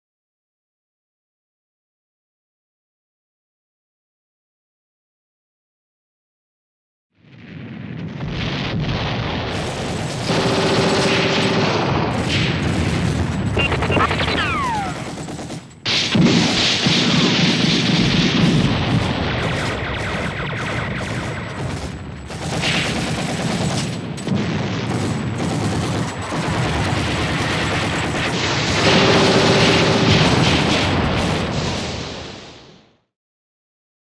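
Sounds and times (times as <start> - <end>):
explosions booming: 7.2 - 33.0
rapid gunfire: 9.2 - 32.5.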